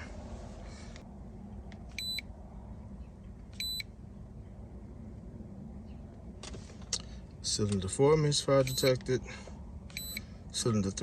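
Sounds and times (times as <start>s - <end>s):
short electronic beeps: 2.0s - 2.2s, 3.6s - 3.9s, 8.7s - 9.0s, 9.9s - 10.3s.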